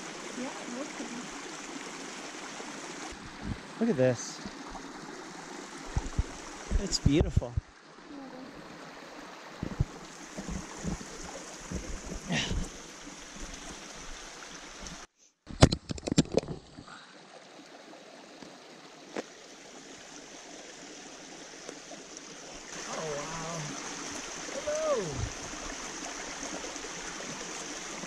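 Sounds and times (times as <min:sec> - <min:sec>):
stream water rushing: 0:00.0 - 0:15.1, 0:17.0 - 0:28.0
low thumps: 0:05.9 - 0:07.7, 0:09.6 - 0:12.7.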